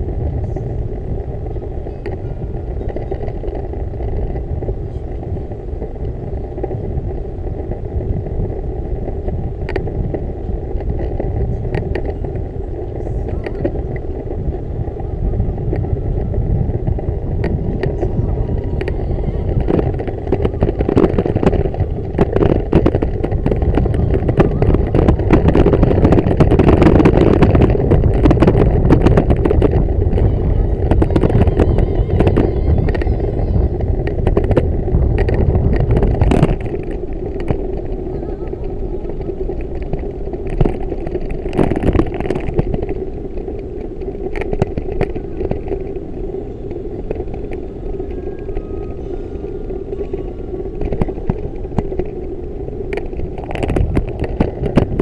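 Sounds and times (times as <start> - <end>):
bicycle road rumble: 0.0 - 55.0
wind buffeting microphone: 0.0 - 55.0.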